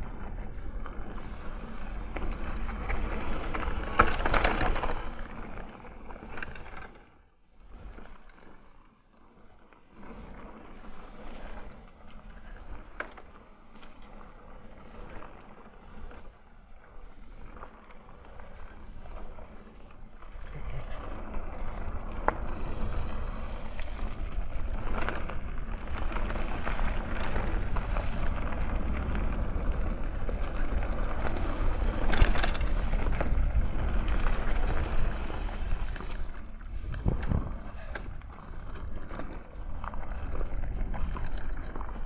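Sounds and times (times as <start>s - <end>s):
bike rattling over bumps: 0.0s - 8.6s, 9.8s - 42.0s
bike tyres rolling on dirt: 0.0s - 42.0s
wind buffeting microphone: 20.5s - 42.0s.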